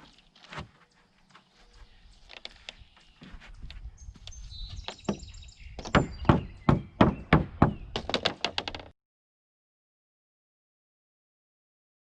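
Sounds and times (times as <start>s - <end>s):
hammer blows on wood: 4.9s - 8.2s.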